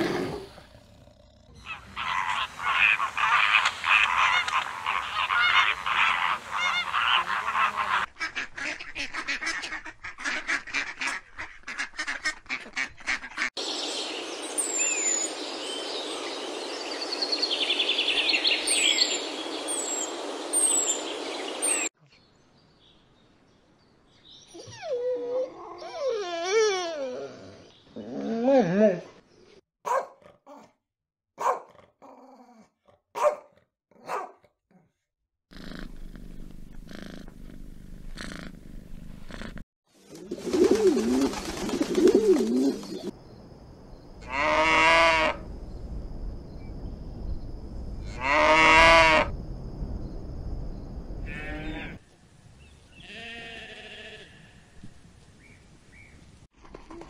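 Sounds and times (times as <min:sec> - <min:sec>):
loud long animal calls: 0:01.6 - 0:08.1, 0:44.2 - 0:45.5, 0:48.0 - 0:49.4
wolf pups whimpering: 0:24.5 - 0:27.7
wing flaps: 0:40.0 - 0:43.1
pigeons cooing: 0:40.1 - 0:43.2
faint sheep bleat: 0:53.0 - 0:54.7.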